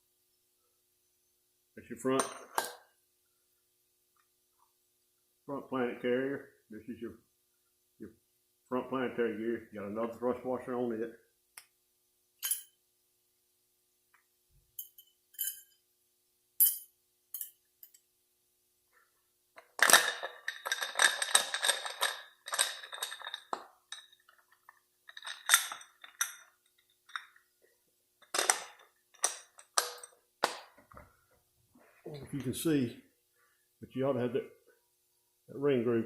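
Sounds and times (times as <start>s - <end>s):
metal gear parts clinking: 19.8s - 26.5s.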